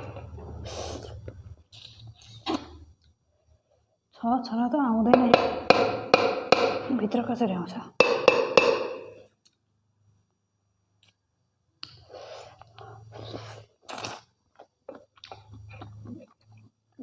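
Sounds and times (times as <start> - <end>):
faint low hum: 0.0 - 8.0
person chewing with wet smacks: 13.9 - 16.8.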